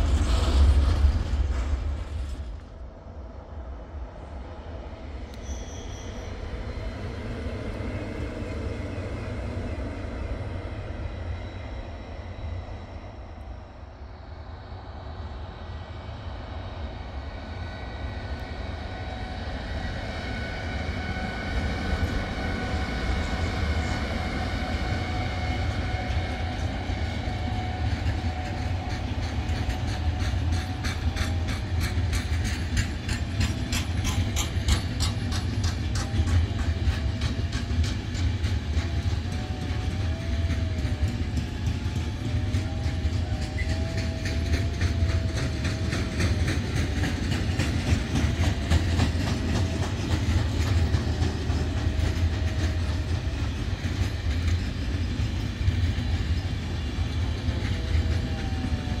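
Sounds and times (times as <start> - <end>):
freight train rumbling past: 0.0 - 59.0
wheels clacking over rail joints: 25.9 - 59.0.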